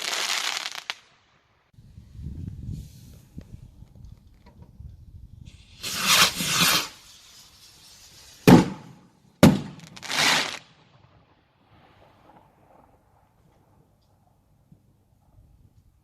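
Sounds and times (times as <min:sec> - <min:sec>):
fireworks hissing: 0:00.0 - 0:01.0, 0:05.4 - 0:09.1
firework bangs: 0:05.5 - 0:11.1.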